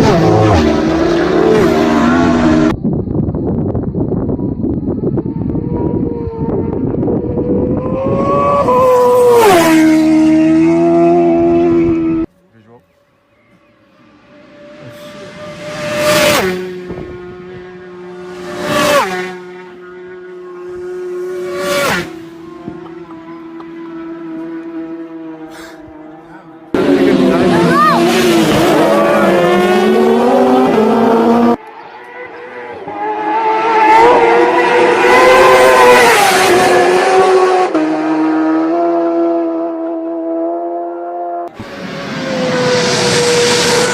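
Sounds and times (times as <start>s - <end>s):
racing motorbikes passing at speed: 0.0s - 2.7s, 5.2s - 12.3s, 13.6s - 43.9s
steady engine drone: 10.3s - 18.6s.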